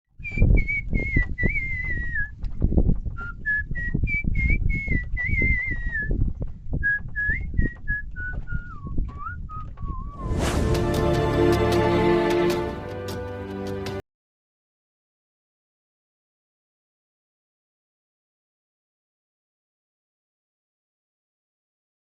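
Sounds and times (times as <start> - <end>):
person whistling a tune: 0.2 - 2.3, 3.2 - 6.2, 6.8 - 10.4
low thumps: 0.2 - 13.2.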